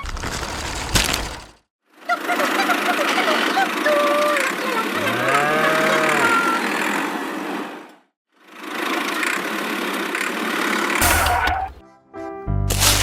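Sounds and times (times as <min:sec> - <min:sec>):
small engine rattling: 0:08.4 - 0:11.0.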